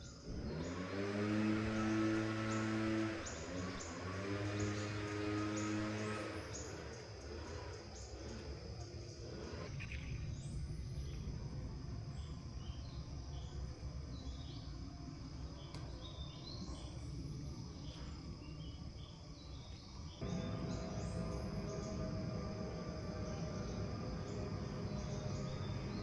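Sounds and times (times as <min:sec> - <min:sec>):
insects calling: 0:00.0 - 0:26.0
steady low rumble: 0:07.9 - 0:26.0.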